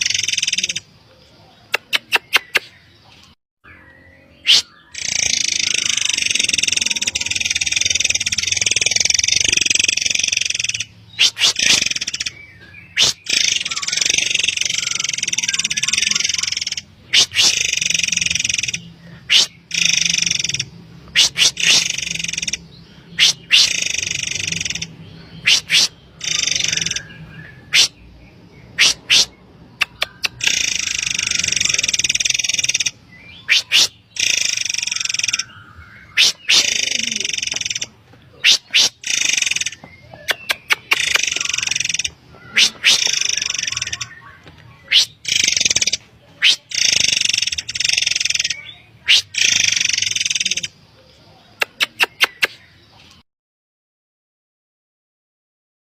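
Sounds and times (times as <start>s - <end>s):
bird harsh buzzy rasping calls: 0.0s - 0.9s, 4.4s - 50.8s
bird rasping buzz: 4.5s - 12.3s, 13.0s - 22.6s, 23.2s - 27.1s.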